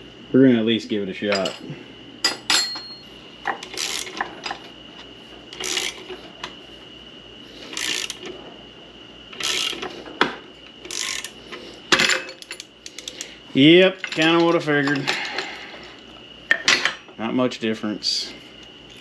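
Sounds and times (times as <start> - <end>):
ratchet wrench clicking: 3.6 - 4.3, 5.6 - 6.0, 7.7 - 8.3, 9.4 - 9.9, 10.8 - 11.4.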